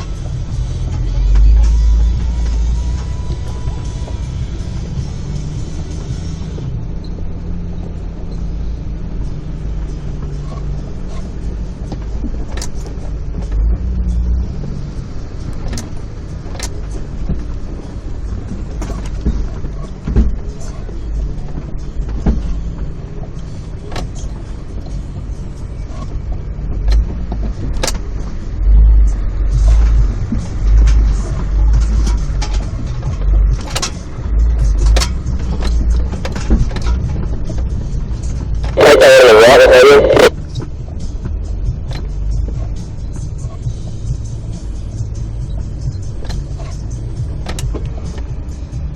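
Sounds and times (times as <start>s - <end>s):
low engine rumble: 0.0s - 48.9s.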